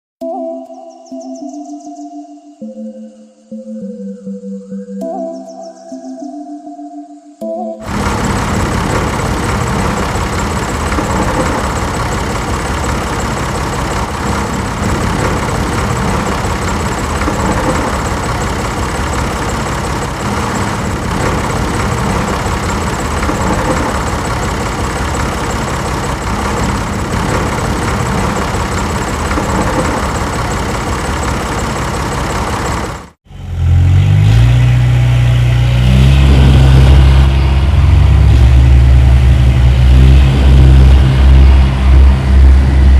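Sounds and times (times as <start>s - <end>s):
mechanical running noise: 7.8s - 33.2s, 35.8s - 42.9s
engine running and revving: 7.8s - 42.9s.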